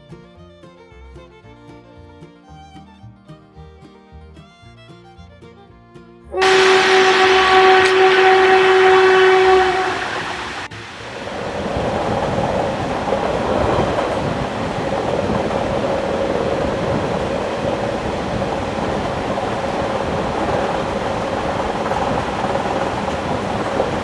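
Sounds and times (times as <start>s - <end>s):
train horn blast: 6.4s - 24.0s
train running rumble: 6.4s - 24.0s.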